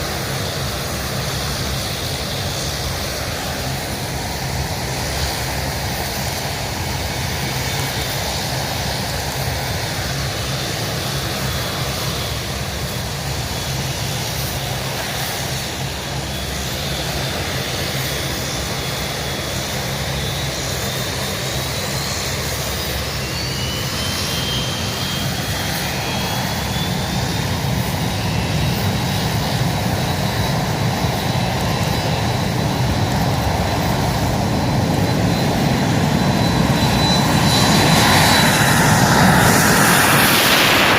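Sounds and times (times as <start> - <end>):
airplane engine rushing: 0.0 - 40.9
faint high whine: 0.2 - 40.9.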